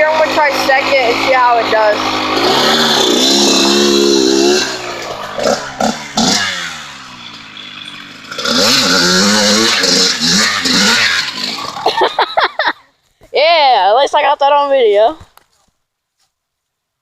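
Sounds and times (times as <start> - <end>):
dirt bike engine revving: 0.0 - 12.8.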